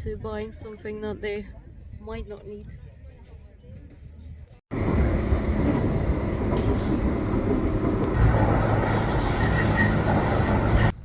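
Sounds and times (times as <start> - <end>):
vehicle rumbling in motion: 4.7 - 11.0.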